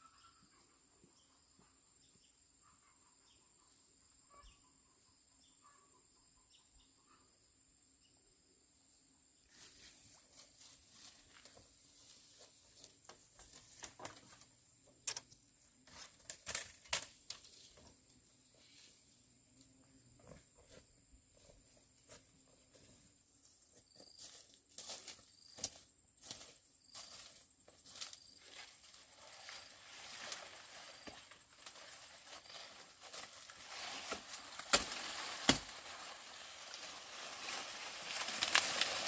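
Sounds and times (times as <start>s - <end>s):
faint chirps: 0.0s - 10.1s
rustling: 26.3s - 39.0s.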